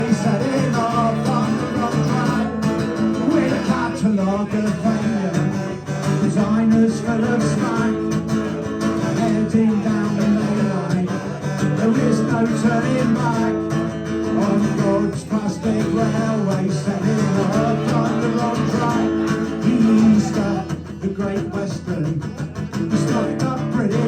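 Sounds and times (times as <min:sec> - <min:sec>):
acoustic guitar strumming punk song: 0:00.0 - 0:24.0.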